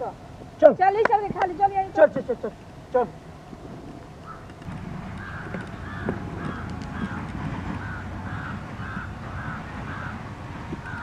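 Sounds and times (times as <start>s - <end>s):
bird harsh calls: 3.1s - 11.0s.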